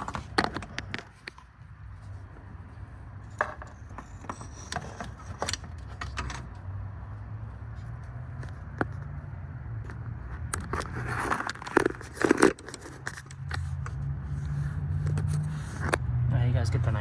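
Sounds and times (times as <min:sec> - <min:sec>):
handling clicks and rattles: 0:03.3 - 0:06.6, 0:09.8 - 0:14.0.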